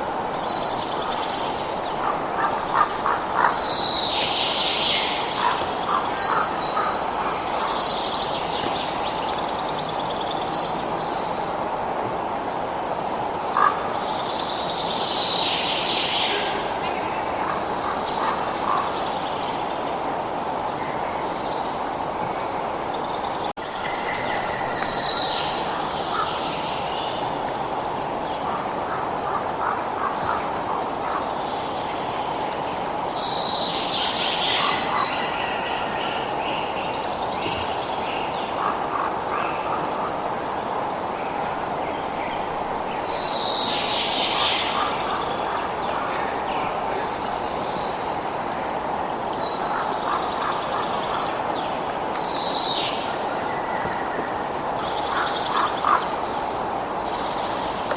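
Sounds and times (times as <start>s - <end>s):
birds calling: 0.0s - 11.5s, 13.4s - 32.3s, 42.0s - 48.2s, 49.2s - 57.8s.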